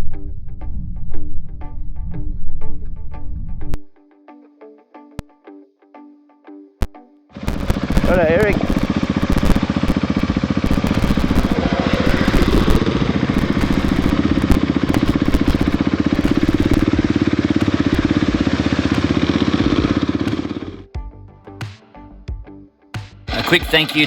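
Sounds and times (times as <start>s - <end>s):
motorcycle engine running: 7.4s - 20.9s.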